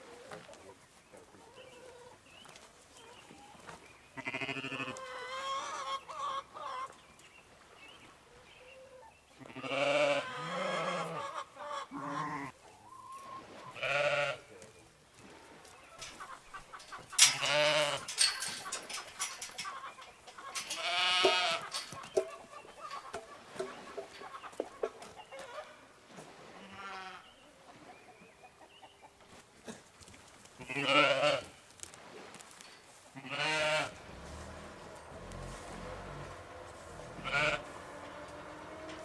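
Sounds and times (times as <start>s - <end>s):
farm animals bleating: 4.1s - 5.9s, 9.4s - 12.6s, 13.7s - 14.6s, 17.2s - 18.4s, 20.4s - 23.1s, 26.6s - 27.3s, 30.6s - 31.5s, 33.2s - 39.0s.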